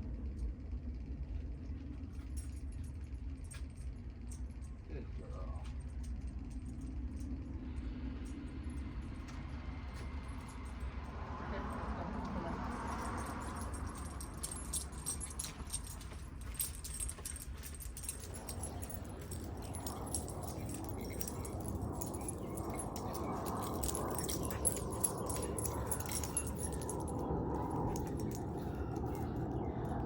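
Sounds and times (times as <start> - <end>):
low steady rumble: 0.0 - 30.0
collar tags jingling: 12.3 - 30.0.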